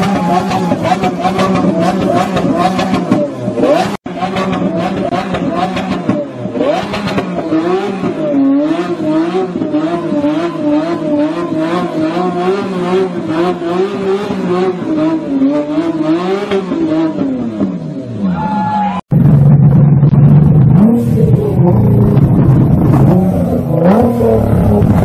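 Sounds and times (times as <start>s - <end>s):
car engine revving high: 0.0s - 18.1s, 19.1s - 25.0s
exhaust pops crackling: 19.1s - 25.0s.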